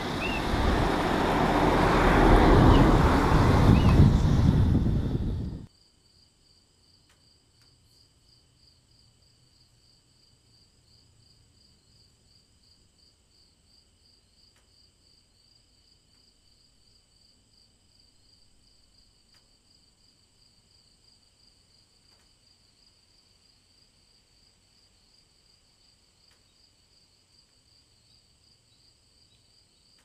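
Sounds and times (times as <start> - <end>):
faint pulsing high chirping: 0.0 - 1.2.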